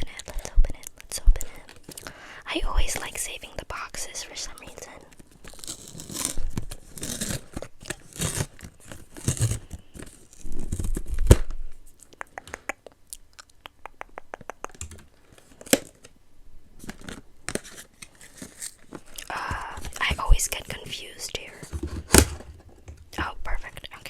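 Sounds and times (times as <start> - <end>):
cardboard packaging tearing and rustling: 5.1 - 11.6, 16.8 - 20.9
sharp snap: 12.1 - 12.9.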